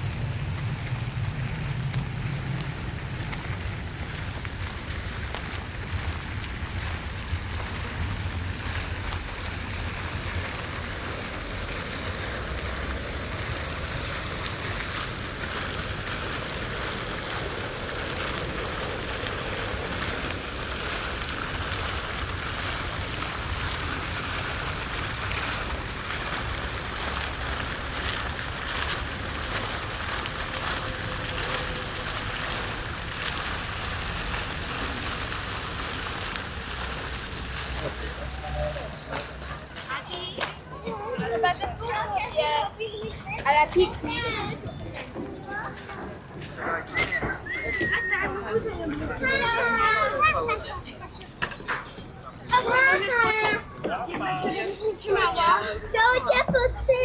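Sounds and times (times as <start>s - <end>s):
wind rumbling on microphone: 0.0s - 39.8s
outdoor rushing noise: 0.0s - 40.7s.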